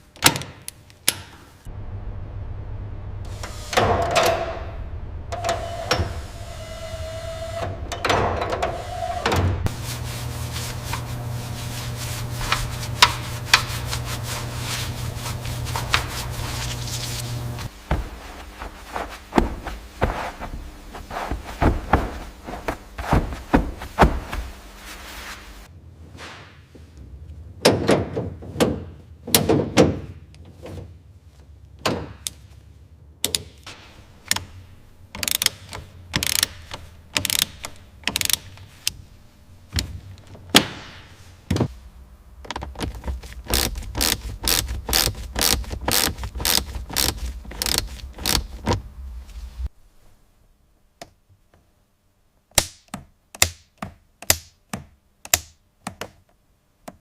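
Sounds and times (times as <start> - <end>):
tools knocking and clicking: 35.1 - 38.7, 52.6 - 56.3.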